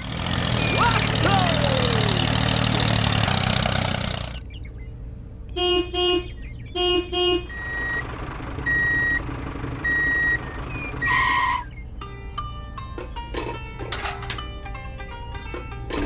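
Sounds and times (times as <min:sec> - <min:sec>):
vehicle engine: 0:00.0 - 0:16.0
horn tooting: 0:05.5 - 0:08.0, 0:09.8 - 0:11.8.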